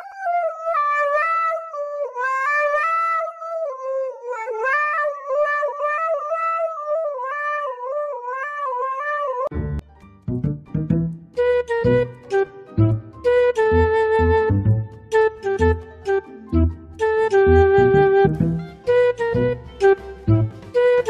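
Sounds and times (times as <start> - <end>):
dog howling into microphone: 0.0 - 9.5.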